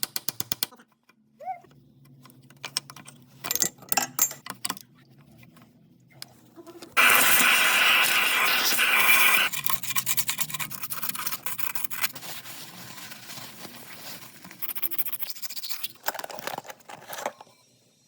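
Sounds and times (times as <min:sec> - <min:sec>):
loud hiss: 0:07.0 - 0:09.5.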